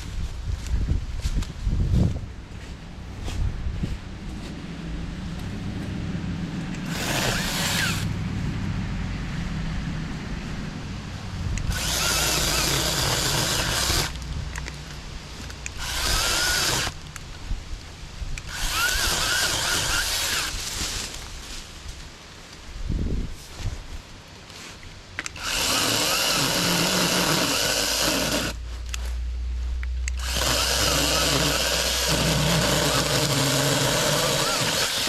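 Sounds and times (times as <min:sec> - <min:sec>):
cordless chainsaw cutting wood: 0:06.8 - 0:08.1, 0:11.6 - 0:14.2, 0:15.7 - 0:17.0, 0:18.4 - 0:20.9, 0:25.3 - 0:28.6, 0:30.1 - 0:35.0.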